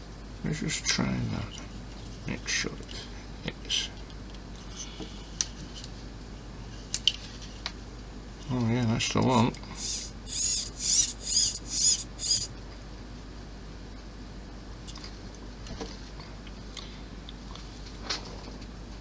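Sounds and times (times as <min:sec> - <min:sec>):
short high squeaks: 0:09.3 - 0:12.5.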